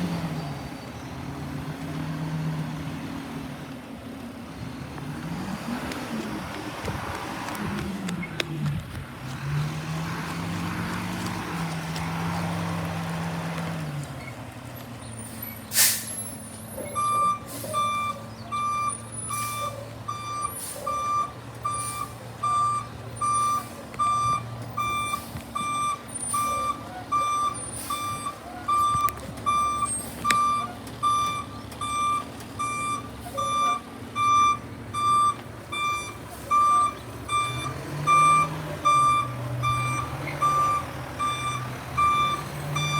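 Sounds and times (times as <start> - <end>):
air brake hiss: 15.7 - 16.2
backup alarm beeping: 16.8 - 42.9.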